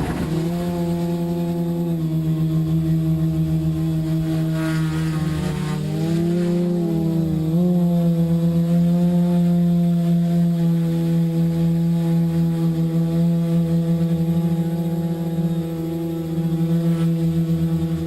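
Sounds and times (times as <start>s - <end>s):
drone propellers humming: 0.0s - 18.0s.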